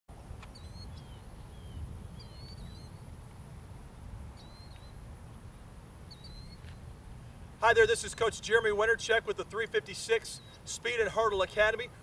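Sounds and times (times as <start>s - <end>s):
birds chirping: 0.5s - 3.1s, 4.3s - 5.1s, 6.0s - 6.9s, 7.6s - 12.0s.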